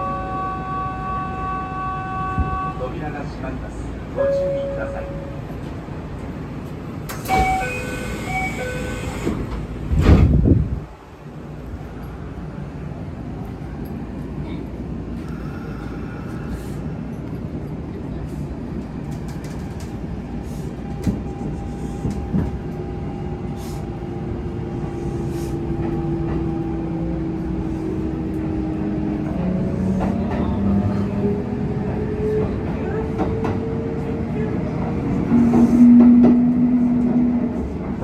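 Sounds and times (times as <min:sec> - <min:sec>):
train wheel rumble: 0:00.0 - 0:38.0
electric train motors whining: 0:07.1 - 0:09.6.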